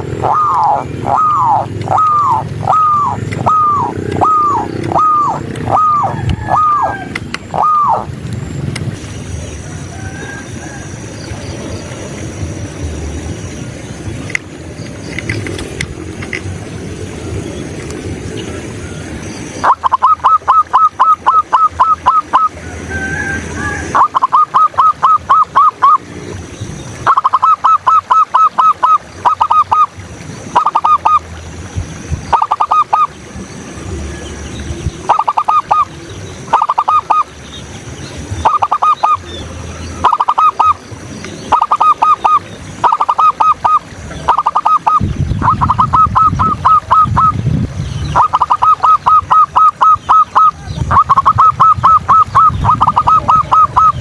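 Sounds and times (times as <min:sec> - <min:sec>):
doves cooing in staccato bursts: 0:00.0 - 0:08.2, 0:19.6 - 0:26.1, 0:38.2 - 0:47.4, 0:48.1 - 0:54.0.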